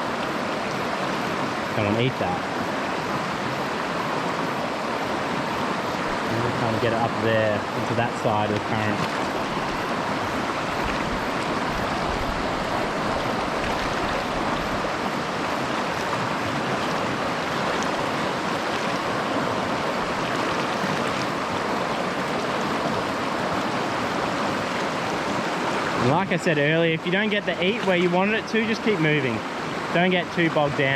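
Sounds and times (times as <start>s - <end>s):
stream rushing over rocks: 0.0s - 30.9s.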